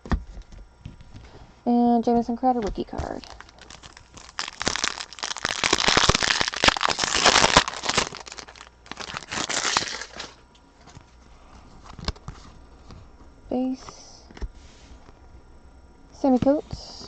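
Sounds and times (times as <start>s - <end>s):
foil wrapper tearing and crinkling: 3.0s - 10.4s.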